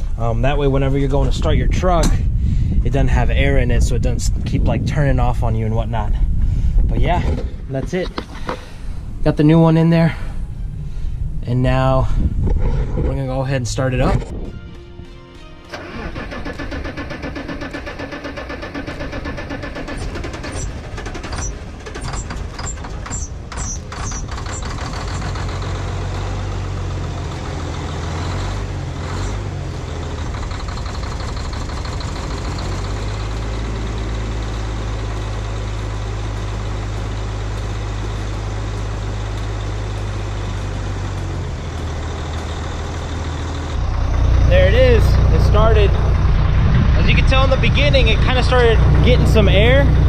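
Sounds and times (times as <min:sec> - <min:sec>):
diesel engine cranking: 0:06.0 - 0:09.3, 0:15.6 - 0:50.0
diesel engine running unevenly: 0:15.7 - 0:50.0.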